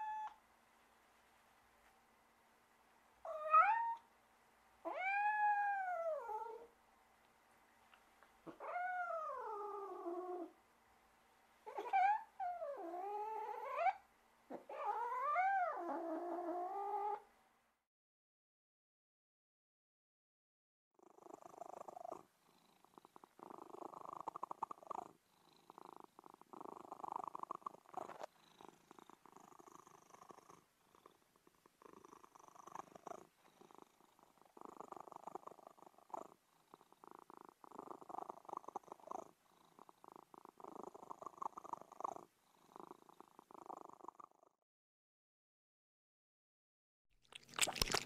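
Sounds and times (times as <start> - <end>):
cat purring: 4.8 - 6.8, 7.8 - 10.6, 11.6 - 17.3, 21.0 - 44.6.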